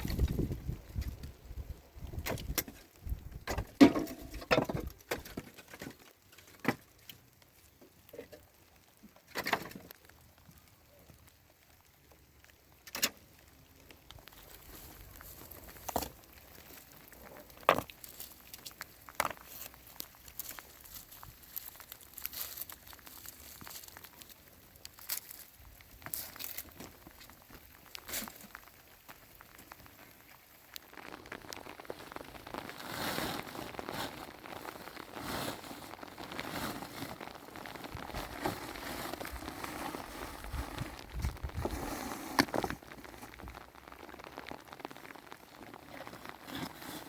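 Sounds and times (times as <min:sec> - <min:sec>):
plastic bags rustling: 0:14.2 - 0:47.0.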